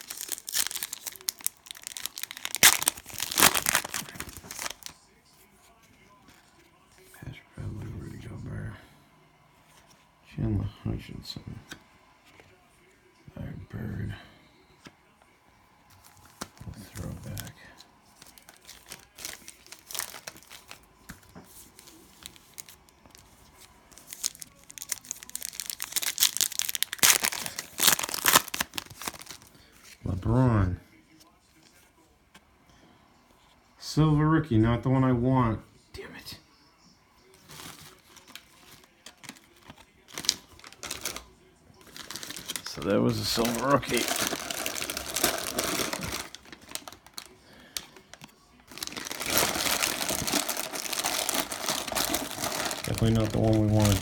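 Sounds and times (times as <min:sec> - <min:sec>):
trading cards clicking and rustling: 0:00.0 - 0:04.9
cellophane wrapper crinkling: 0:00.0 - 0:05.0, 0:16.0 - 0:30.0, 0:37.4 - 0:54.0.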